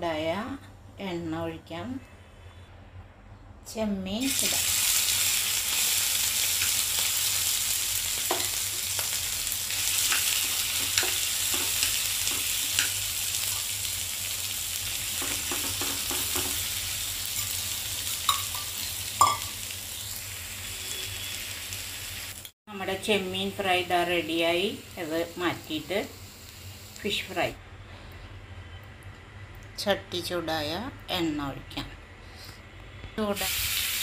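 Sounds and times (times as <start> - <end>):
prawns sizzling in hot oil: 4.2 - 27.5, 33.4 - 34.0
spoon tapping and scraping pan: 15.2 - 16.6, 18.3 - 19.5.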